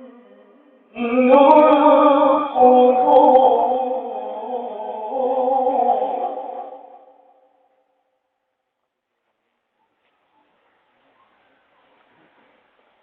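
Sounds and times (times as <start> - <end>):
man reciting melodically: 0.0 - 7.2.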